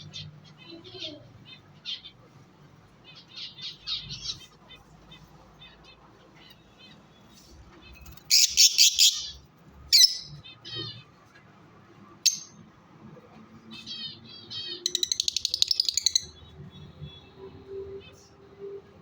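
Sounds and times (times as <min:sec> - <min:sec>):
lovebirds chattering and shrieking: 0:00.0 - 0:11.5, 0:12.1 - 0:17.2.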